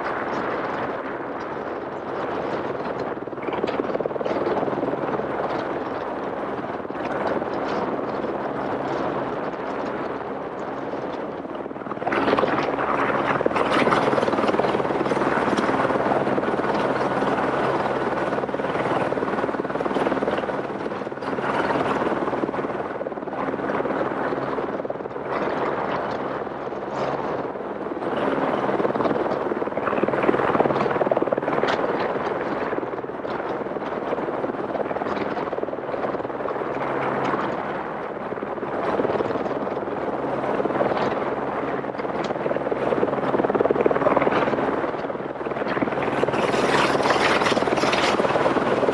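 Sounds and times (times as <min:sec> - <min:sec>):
helicopter rotor and engine drone: 0:00.0 - 0:48.9
broad rushing noise: 0:42.9 - 0:48.9.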